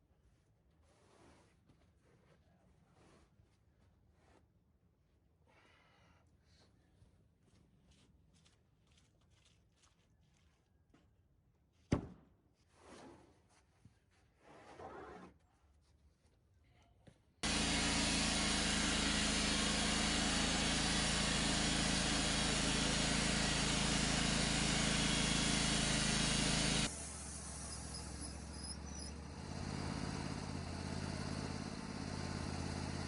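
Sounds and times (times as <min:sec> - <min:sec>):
engine running: 0:17.4 - 0:33.0.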